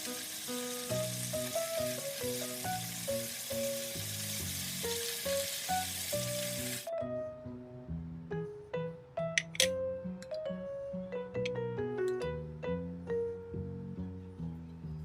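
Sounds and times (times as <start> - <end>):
food sizzling in a pan: 0.0 - 6.9
background music simple melody: 0.0 - 15.0.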